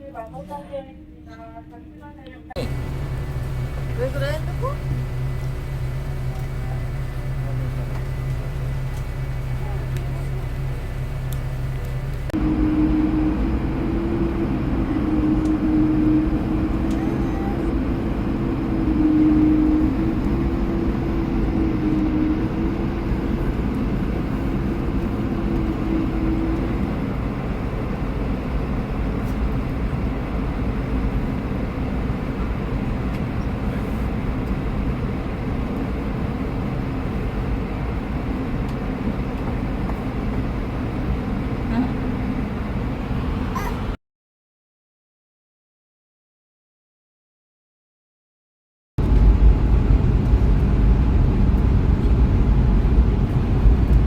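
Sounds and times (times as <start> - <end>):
airliner engines low rumble: 0.0 - 44.0, 49.0 - 54.0
wavering hum: 2.6 - 32.8.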